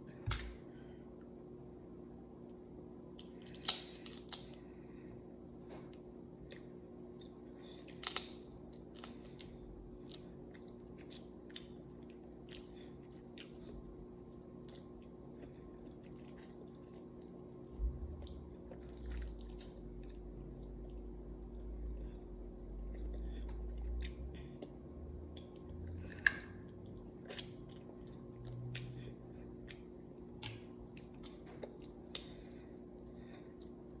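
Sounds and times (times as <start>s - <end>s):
person chewing crunchy food: 6.4s - 34.0s
low hum: 12.5s - 34.0s.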